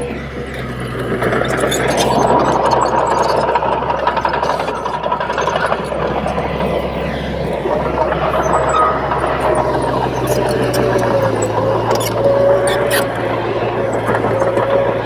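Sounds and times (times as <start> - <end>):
diesel engine under load: 0.0 - 15.0
steel tracks clattering: 0.5 - 15.0
thin squeal: 4.3 - 15.0.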